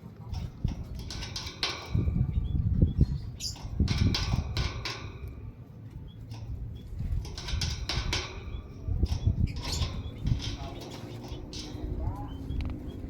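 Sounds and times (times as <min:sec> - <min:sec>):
bird wing flutters and taps: 0:00.3 - 0:02.4, 0:06.2 - 0:12.0.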